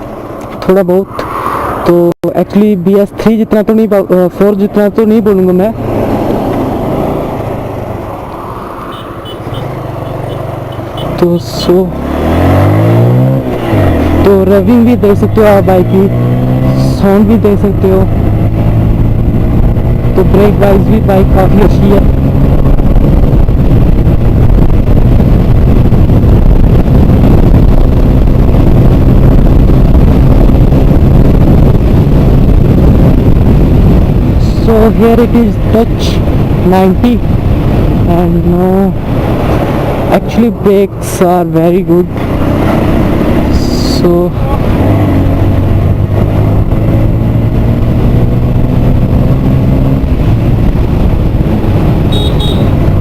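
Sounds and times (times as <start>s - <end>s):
wind rushing over microphone: 0.0s - 53.0s
motorcycle engine at high speed: 5.7s - 53.0s
motorcycle engine running: 41.8s - 53.0s.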